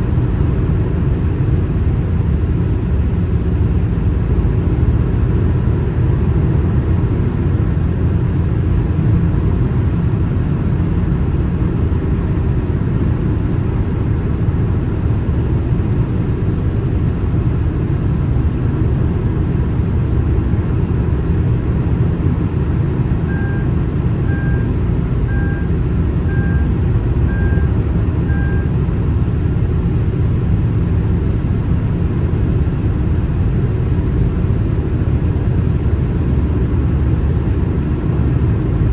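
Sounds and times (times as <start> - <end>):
car driving on highway: 0.0 - 38.9
short beeps: 23.3 - 25.7, 26.3 - 28.7.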